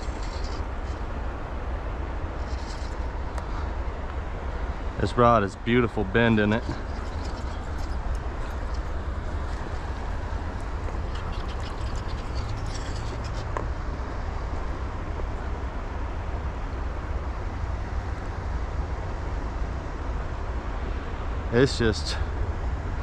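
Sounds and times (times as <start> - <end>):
river current rushing: 0.0 - 2.4, 14.3 - 18.6
wind on microphone: 0.0 - 18.6.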